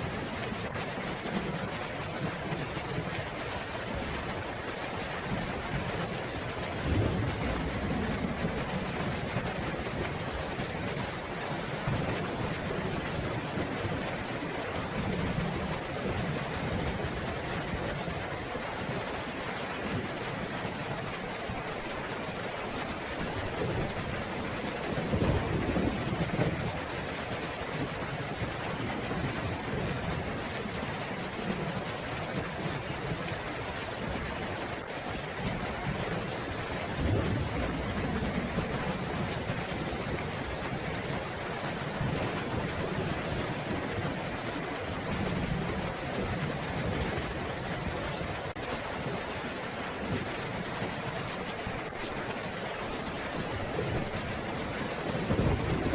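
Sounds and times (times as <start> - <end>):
steady rain falling: 0.0 - 55.9
thunder rumbling: 5.5 - 10.6, 53.6 - 55.9.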